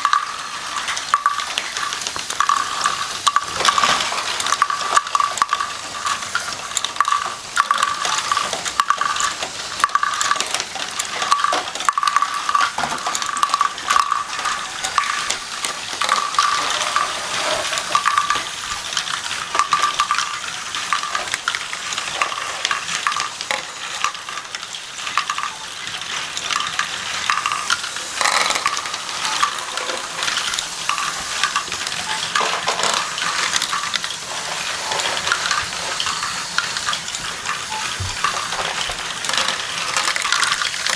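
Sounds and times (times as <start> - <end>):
plastic bricks clicking and rattling: 0.0 - 40.9
pulsing high tone: 35.4 - 38.5.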